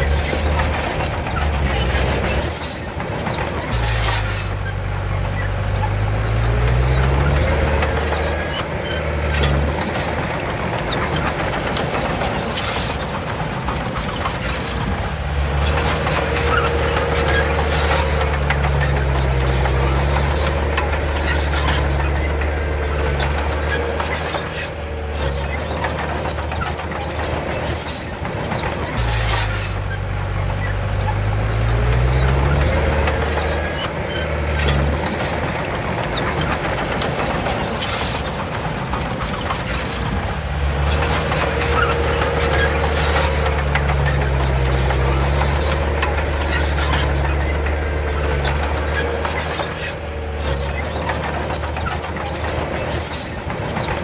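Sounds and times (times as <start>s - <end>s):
bulldozer diesel engine under load: 0.0s - 54.0s
metallic clatter of tracks: 0.0s - 54.0s.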